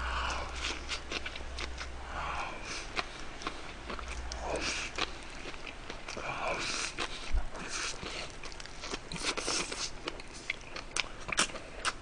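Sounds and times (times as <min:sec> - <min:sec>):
wet chewing mouth clicks: 0:07.9 - 0:12.0.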